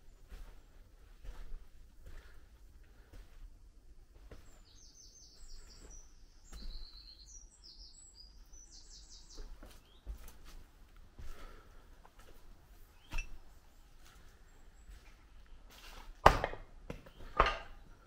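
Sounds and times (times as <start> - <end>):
small bird chirping: 4.3 - 10.4.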